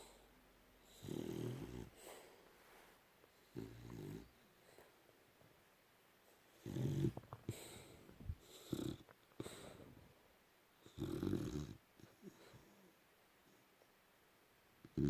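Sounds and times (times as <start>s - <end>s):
soft snuffling breaths: 0.0s - 5.1s, 6.2s - 10.2s
dog snoring: 0.8s - 2.3s, 3.4s - 4.4s, 6.5s - 9.9s, 10.8s - 12.8s.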